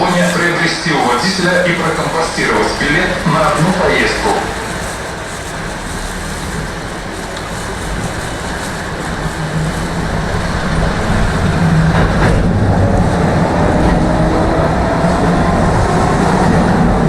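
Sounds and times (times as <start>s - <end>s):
tram running on rails: 0.0s - 17.0s.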